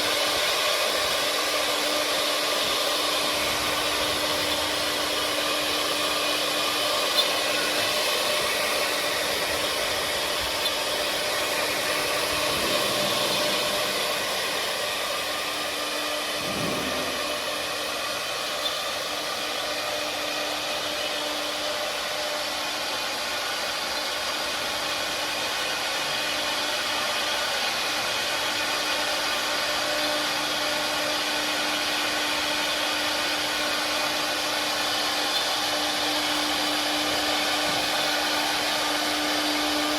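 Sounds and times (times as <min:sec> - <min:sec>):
milling hiss: 0:00.0 - 0:22.0
spindle whine: 0:00.0 - 0:24.4.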